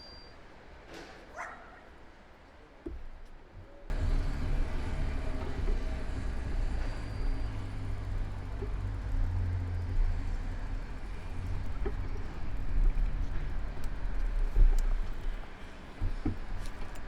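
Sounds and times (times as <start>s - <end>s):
motor traffic: 3.9s - 17.0s
wind and road rumble: 3.9s - 17.0s.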